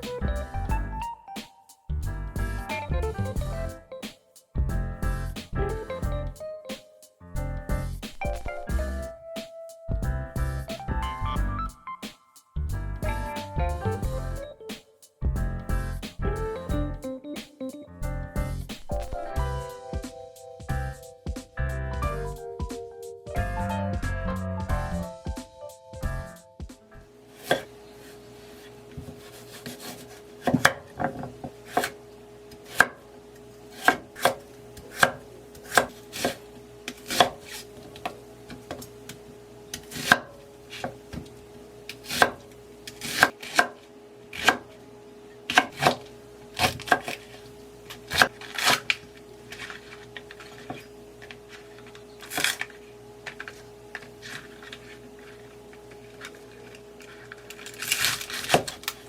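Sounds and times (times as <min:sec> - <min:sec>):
faint hum: 0:17.8 - 0:59.0
knife chopping on cutting board: 0:27.4 - 0:27.7, 0:33.8 - 0:36.4, 0:37.1 - 0:37.4, 0:39.9 - 0:41.0, 0:42.0 - 0:42.4, 0:43.0 - 0:43.8, 0:44.4 - 0:44.7.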